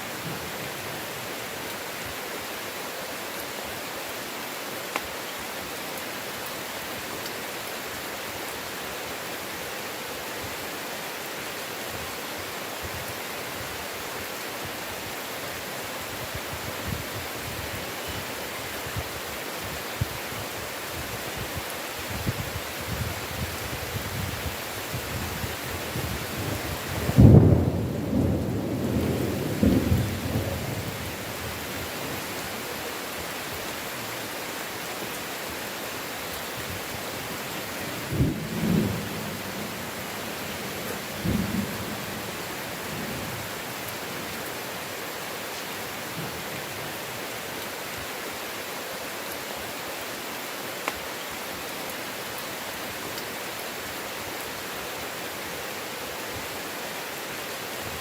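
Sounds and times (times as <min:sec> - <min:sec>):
heavy rain: 0:00.0 - 0:58.0
thunder rumbling: 0:25.9 - 0:31.2.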